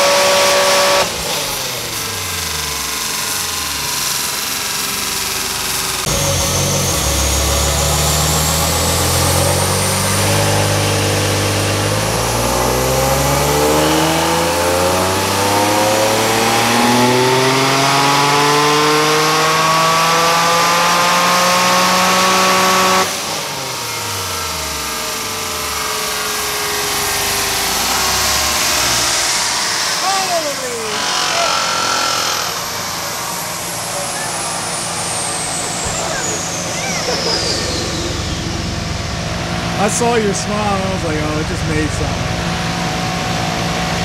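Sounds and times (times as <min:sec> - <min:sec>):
car engine revving at full throttle: 0:00.0 - 0:44.0.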